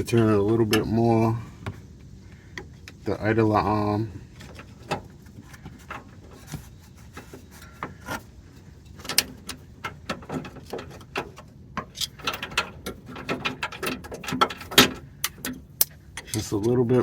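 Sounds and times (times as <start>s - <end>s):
metallic clicks and knocks: 4.4s - 17.0s.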